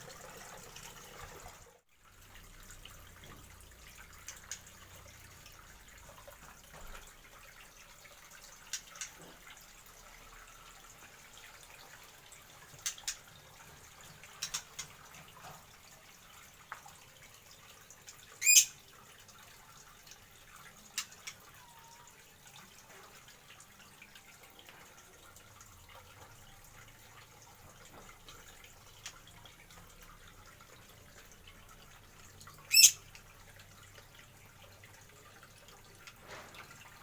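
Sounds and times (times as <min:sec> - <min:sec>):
birds chirping: 0:18.4 - 0:18.7, 0:32.7 - 0:33.0.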